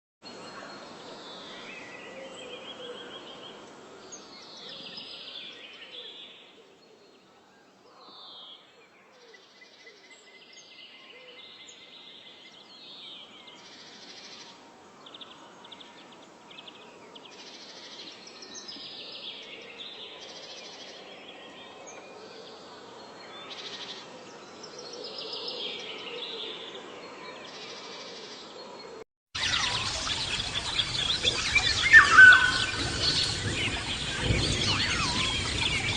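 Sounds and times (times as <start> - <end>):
birds singing and calling: 10.5 - 35.9.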